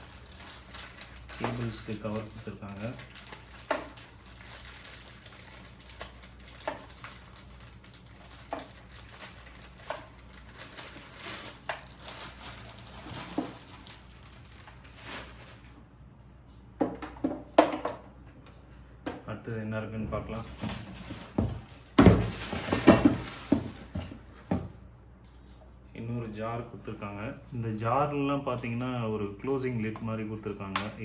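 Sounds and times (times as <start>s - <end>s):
plastic packaging crinkling: 0.0s - 15.8s, 20.4s - 24.0s.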